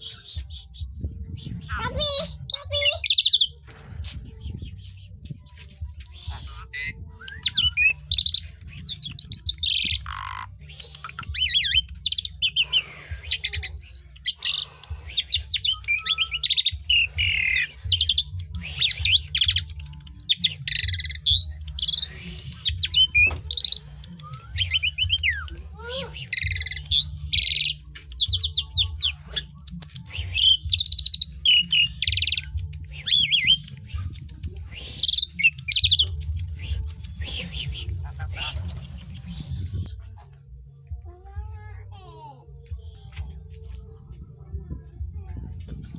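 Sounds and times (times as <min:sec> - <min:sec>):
starling singing: 0:00.0 - 0:40.0.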